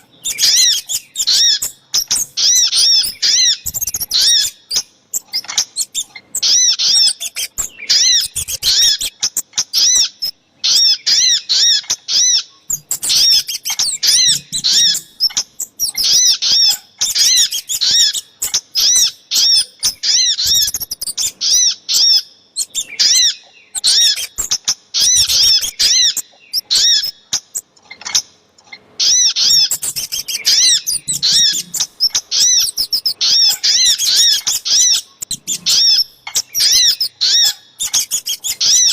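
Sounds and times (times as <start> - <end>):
bird chirping: 0.0 - 38.9
second bird calling: 29.0 - 38.9.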